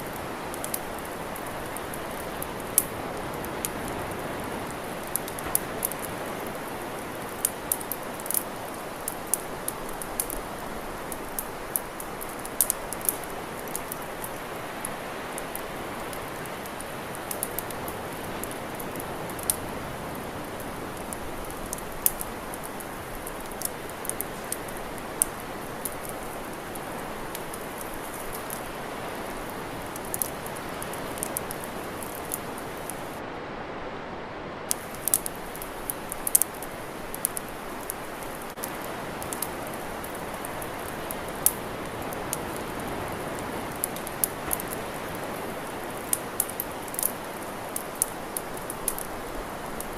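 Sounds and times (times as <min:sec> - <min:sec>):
campfire crackling: 0:00.0 - 0:33.3, 0:34.6 - 0:49.9
steady hiss: 0:00.0 - 0:33.4, 0:34.3 - 0:49.9.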